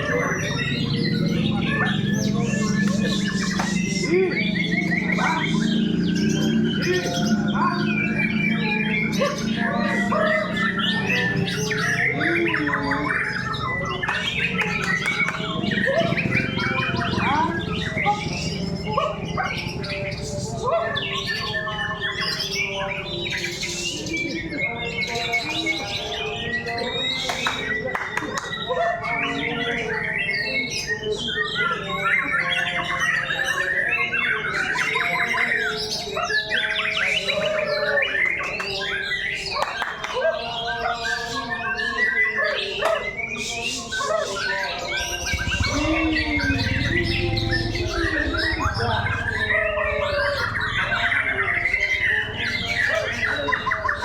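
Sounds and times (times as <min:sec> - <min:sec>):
songbirds whistling and trilling: 0:00.0 - 0:54.0
steady low hum: 0:45.0 - 0:52.6.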